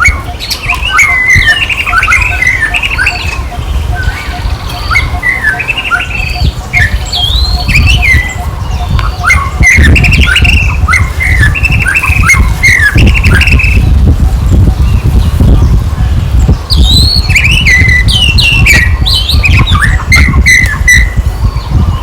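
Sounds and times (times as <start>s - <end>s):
high-pitched squeaks and chirps: 0.0s - 15.7s, 16.7s - 22.0s
steady low rumble: 0.0s - 22.0s.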